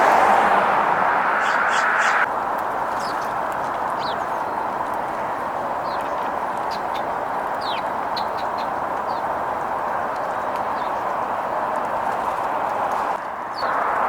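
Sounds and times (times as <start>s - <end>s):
rushing background noise: 0.0s - 14.0s
sparrows chirping: 1.3s - 2.3s, 2.9s - 4.8s, 5.8s - 9.4s, 10.3s - 11.6s, 13.5s - 13.8s.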